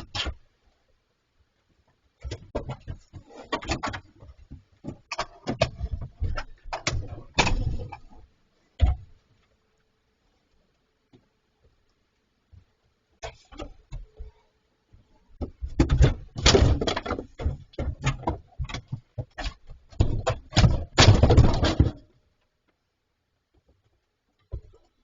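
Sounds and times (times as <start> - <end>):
bears banging refrigerator: 2.2 - 8.2, 15.4 - 22.1.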